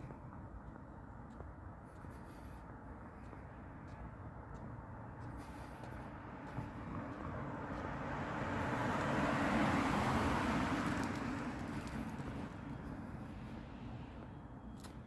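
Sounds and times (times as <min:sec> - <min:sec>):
road vehicle driving past: 0:03.6 - 0:15.0.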